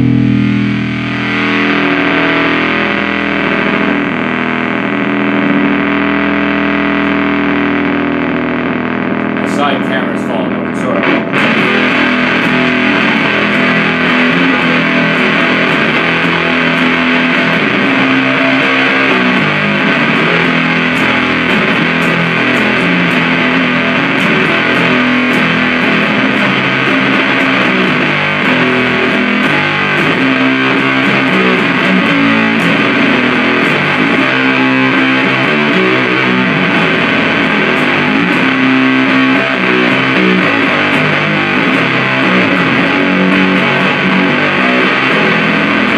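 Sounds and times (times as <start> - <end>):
fuzzed electric guitar riffing: 0.0 - 45.9.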